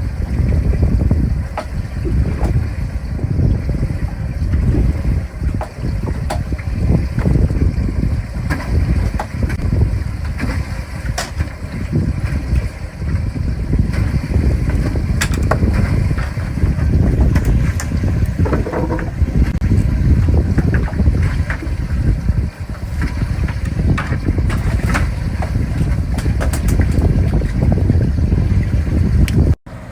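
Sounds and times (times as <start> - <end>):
wind buffeting microphone: 0.0 - 29.9
sharp knocks: 18.4 - 19.2.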